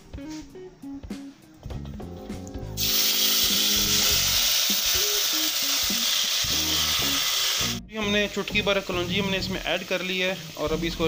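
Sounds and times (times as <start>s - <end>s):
tomatoes sizzling in hot oil: 2.8s - 11.0s.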